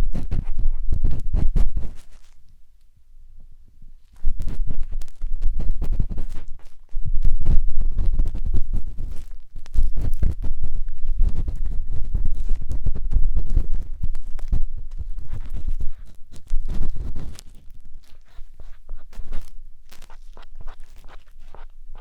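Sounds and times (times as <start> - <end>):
matchstick scraping on microphone: 0.0 - 2.5, 4.0 - 22.0.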